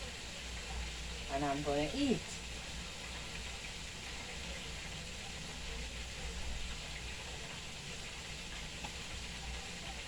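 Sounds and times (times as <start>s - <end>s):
chicken sizzling in hot oil: 0.0s - 10.0s.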